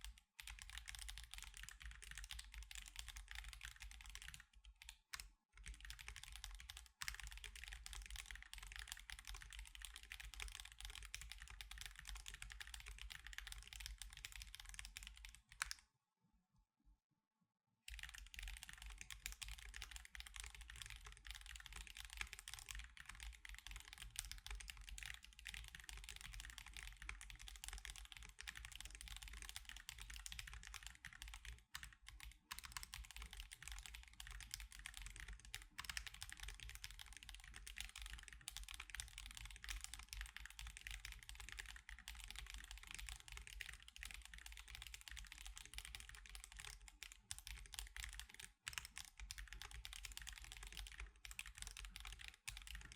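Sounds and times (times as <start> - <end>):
fast mechanical keyboard typing: 0.1 - 15.8, 17.9 - 52.9.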